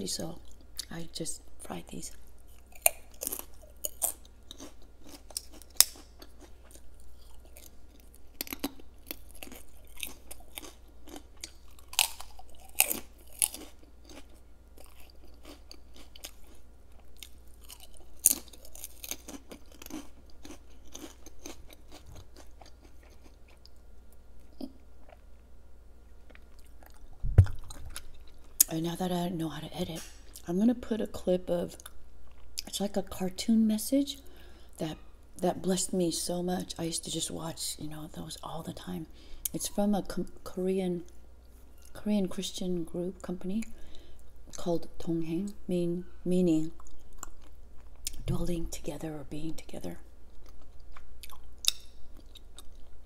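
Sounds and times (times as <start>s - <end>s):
crunching and chewing noodles: 2.1s - 28.7s, 46.8s - 48.2s, 50.3s - 53.0s
short low thump: 27.2s - 27.8s.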